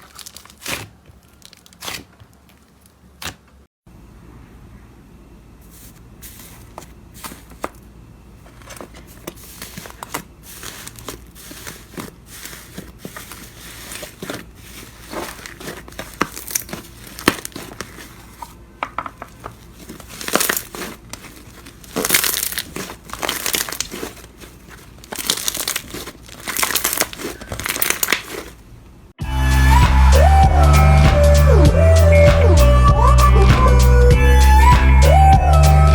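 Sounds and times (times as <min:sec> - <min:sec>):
slime crackling and popping: 0:00.0 - 0:03.4, 0:13.7 - 0:18.3, 0:19.4 - 0:28.6.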